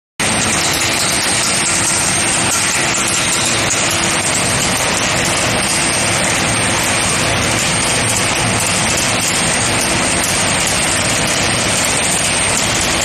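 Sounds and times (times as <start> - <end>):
furnace mechanical noise: 0.2 - 13.0.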